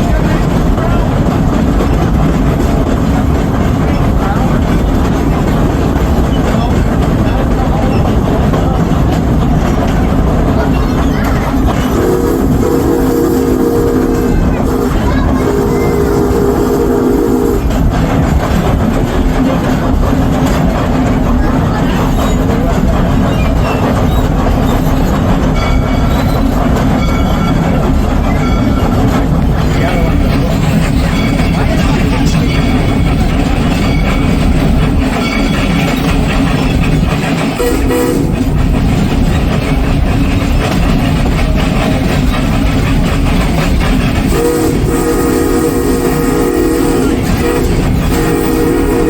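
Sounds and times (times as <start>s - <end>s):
steam train wheels rumbling on rails: 0.0s - 49.0s
locomotive whistle blowing: 11.8s - 17.7s, 37.6s - 38.4s, 44.3s - 49.0s.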